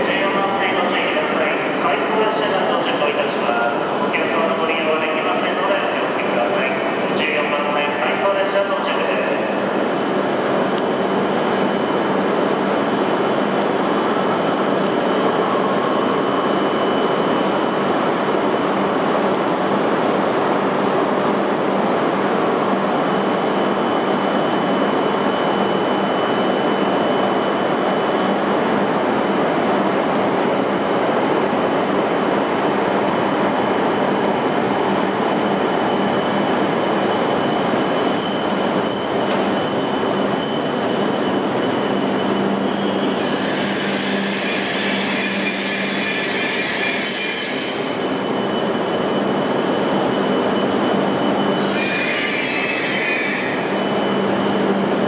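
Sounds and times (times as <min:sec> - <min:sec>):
train running noise: 0:00.0 - 0:55.0
high-pitched brake squeal: 0:36.0 - 0:49.8, 0:50.9 - 0:54.8.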